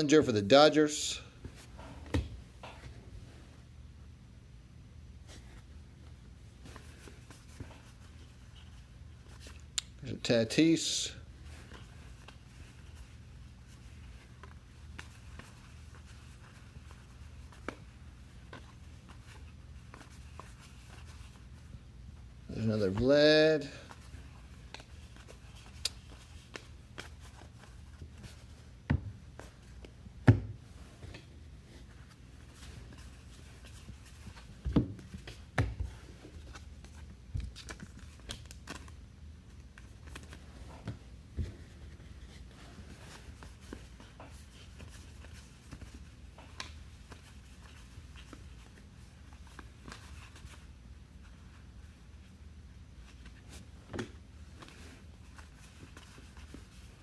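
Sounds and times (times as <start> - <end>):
cards flipping and rustling: 11.4 - 21.5, 23.8 - 30.0, 31.0 - 51.7, 53.0 - 57.0.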